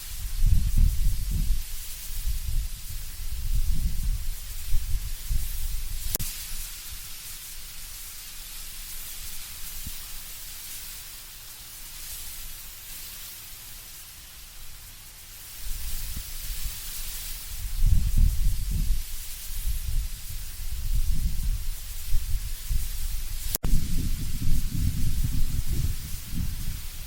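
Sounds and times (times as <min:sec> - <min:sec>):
leaves rustling in wind: 0:00.0 - 0:27.0
low wind gusts rumbling: 0:00.1 - 0:06.2, 0:17.5 - 0:27.0.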